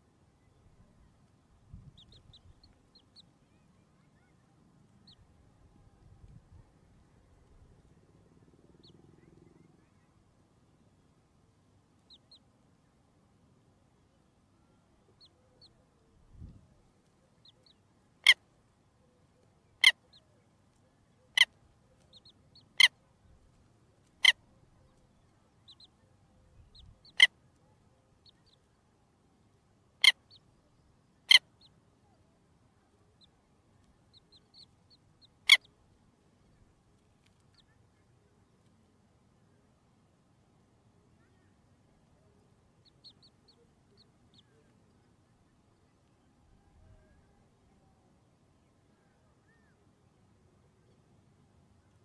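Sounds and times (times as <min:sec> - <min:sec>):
faint high bird chirps: 0:01.8 - 0:05.4, 0:41.2 - 0:48.0, 0:48.7 - 0:50.0.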